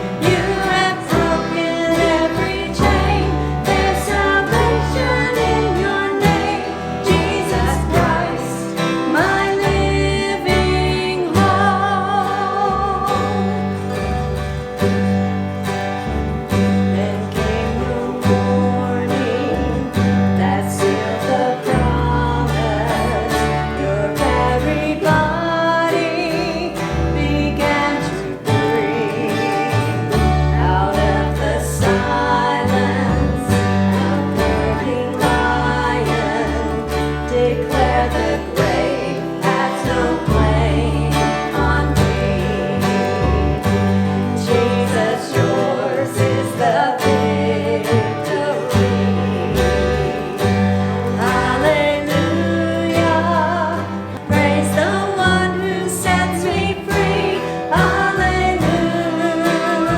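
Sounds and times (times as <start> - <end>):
acoustic guitar: 0.0 - 59.9
bass accompaniment: 0.0 - 59.9
person singing with vibrato: 0.0 - 59.9.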